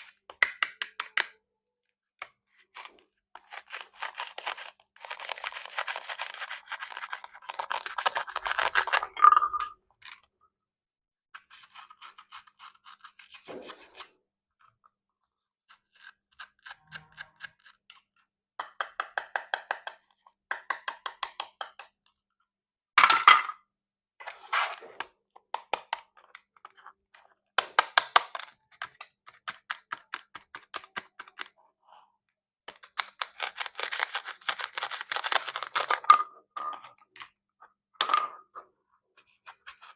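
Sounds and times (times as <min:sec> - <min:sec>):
toy knife cutting plastic fruit: 0:02.5 - 0:09.0, 0:11.4 - 0:14.0, 0:15.7 - 0:22.0, 0:27.6 - 0:31.6, 0:32.7 - 0:36.0.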